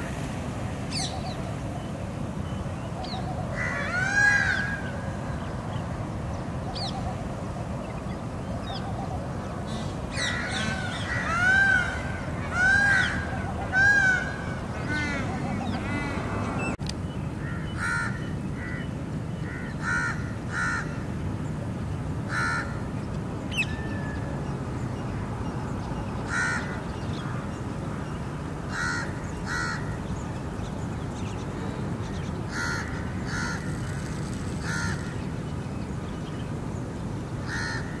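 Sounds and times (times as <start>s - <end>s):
harsh bird calls: 7.9s - 21.1s.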